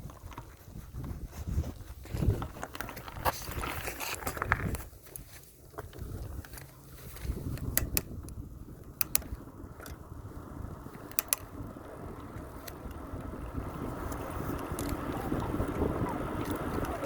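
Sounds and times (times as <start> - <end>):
sharp clicks: 7.5 - 10.0, 11.0 - 11.5.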